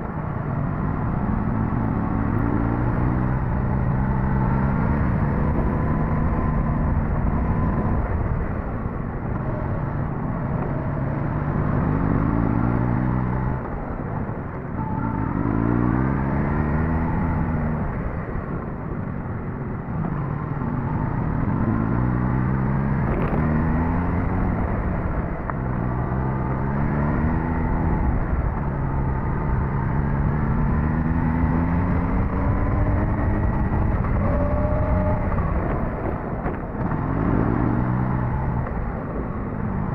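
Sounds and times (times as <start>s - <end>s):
motorcycle engine revving: 21.0s - 39.9s
riding noise: 29.6s - 39.9s.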